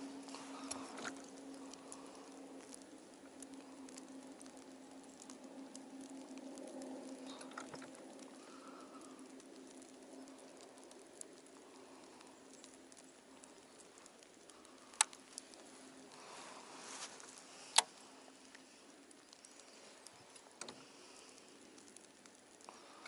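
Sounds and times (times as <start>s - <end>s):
faint steady hum: 0.0s - 23.0s
snow pattering on a boat: 0.0s - 23.0s
sharp clicks: 13.5s - 15.5s, 17.7s - 18.6s, 19.3s - 23.0s.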